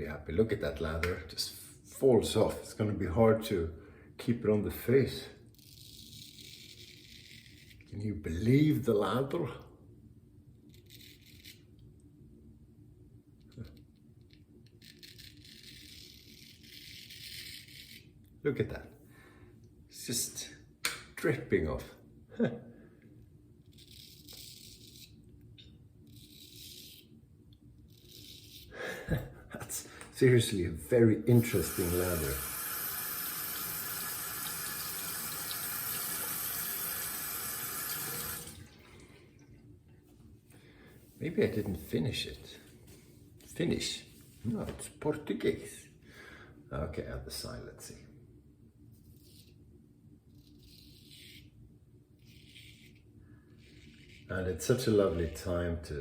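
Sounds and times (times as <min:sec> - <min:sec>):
low steady hum: 0:00.0 - 0:56.0
shaving brush swishing lather: 0:52.2 - 0:55.5.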